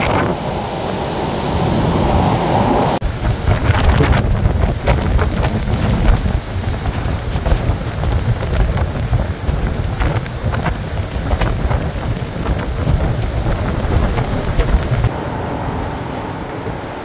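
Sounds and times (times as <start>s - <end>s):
blizzard wind buffeting microphone: 0.0s - 17.0s
sharp crackles: 3.1s - 15.1s.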